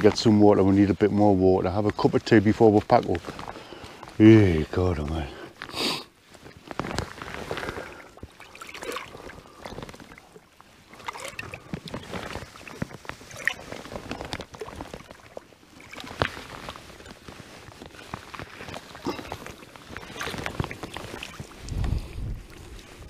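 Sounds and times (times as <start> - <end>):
water splashing and gurgling: 6.4 - 23.0.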